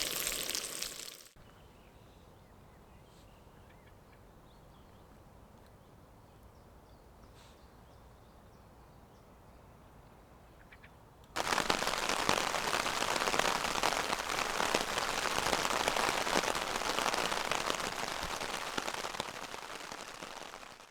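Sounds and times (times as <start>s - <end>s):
bacon sizzling in a frying pan: 0.0s - 1.4s, 11.4s - 20.8s.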